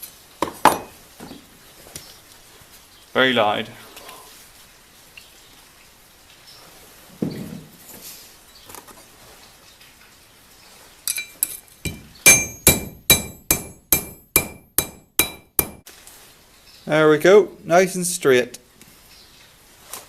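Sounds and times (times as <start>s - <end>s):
hammer striking steel blade: 11.1s - 15.8s
dull knock: 11.9s - 15.8s.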